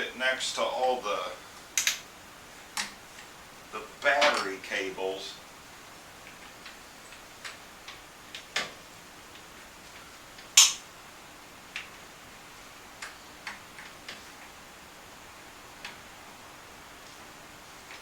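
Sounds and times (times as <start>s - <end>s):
hands clicking and tapping parts: 1.8s - 2.0s, 6.2s - 10.8s
sharp click: 10.6s - 10.8s.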